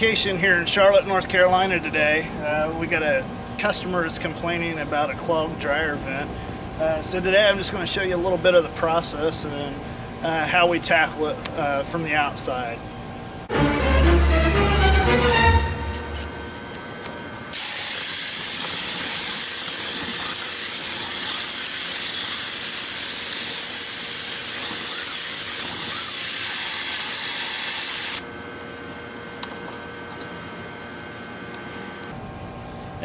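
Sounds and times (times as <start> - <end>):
power tool whining in duct: 13.6 - 32.1.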